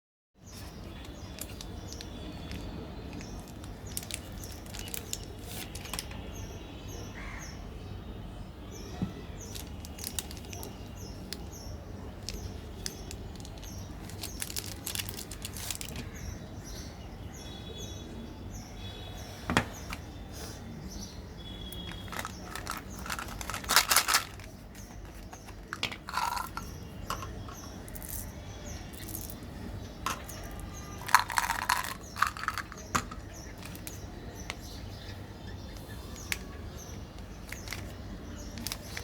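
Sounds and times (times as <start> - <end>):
birds chirping: 0.4 - 39.0.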